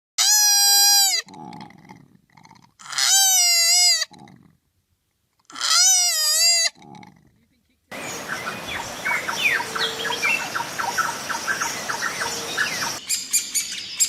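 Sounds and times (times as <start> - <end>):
animal crying loudly: 0.2 - 1.4, 2.8 - 4.2, 5.5 - 6.8
low rough grunting: 6.7 - 7.5.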